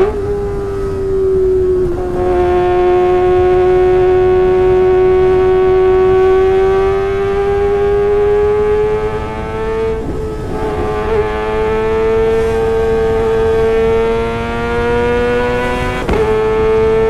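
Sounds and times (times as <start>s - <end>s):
motorcycle engine revving high: 0.0s - 17.0s.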